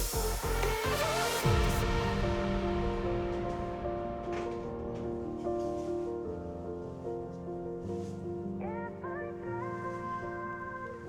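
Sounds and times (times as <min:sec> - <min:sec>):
held chords: 0:00.0 - 0:07.6.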